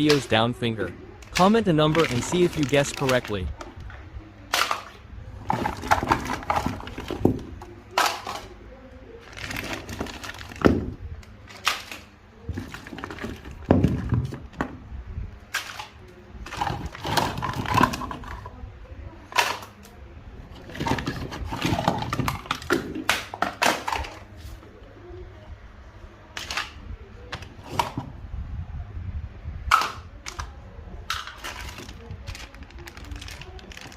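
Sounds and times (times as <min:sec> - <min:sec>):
power supply units clattering: 0:00.0 - 0:08.6, 0:09.2 - 0:18.6, 0:20.5 - 0:24.4.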